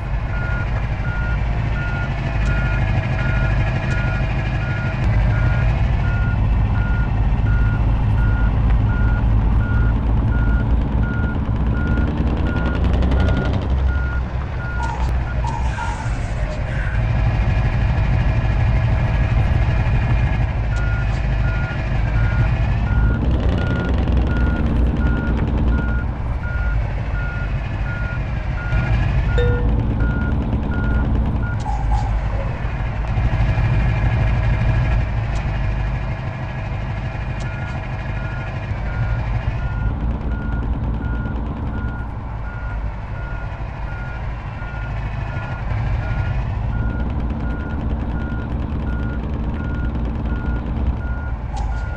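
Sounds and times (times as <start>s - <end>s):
truck engine revving: 0.0s - 51.9s
reversing beeper beeps: 22.2s - 31.7s.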